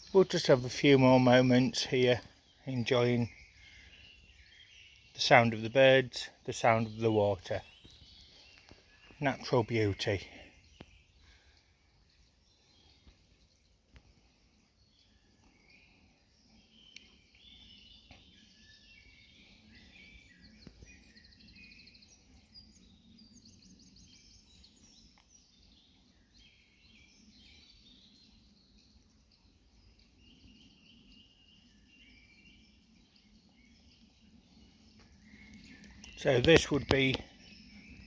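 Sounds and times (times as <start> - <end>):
small birds chirping and trilling: 0.0 - 38.0
faint clicks: 16.9 - 17.2, 35.0 - 37.3.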